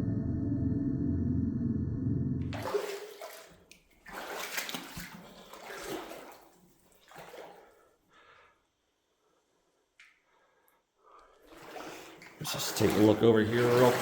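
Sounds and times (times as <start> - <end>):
boots splashing through water: 2.5 - 7.7, 11.5 - 14.0.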